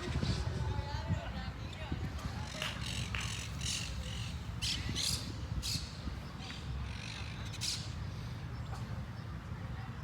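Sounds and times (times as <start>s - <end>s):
birds giving harsh calls: 2.4s - 8.5s.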